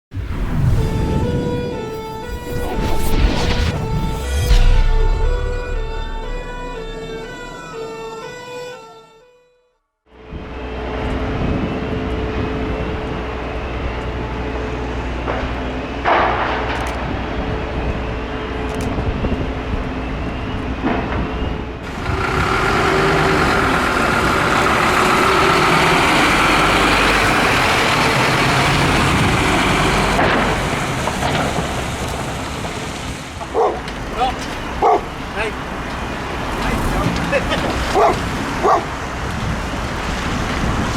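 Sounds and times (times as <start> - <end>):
short sharp sound: 0.2 - 8.8
diesel engines running: 10.1 - 40.9.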